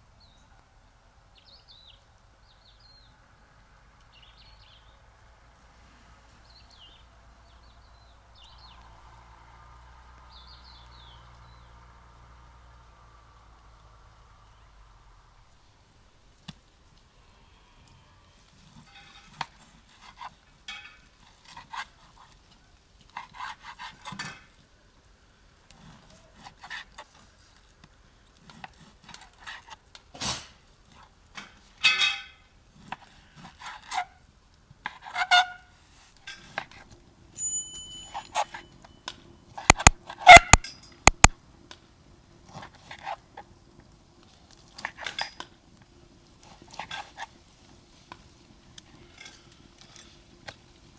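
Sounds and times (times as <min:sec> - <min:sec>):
sharp loud clicks: 0:39.7 - 0:41.4.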